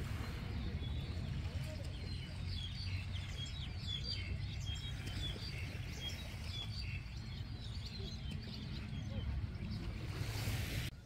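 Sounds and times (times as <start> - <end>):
small birds chirping: 0.2 - 10.9.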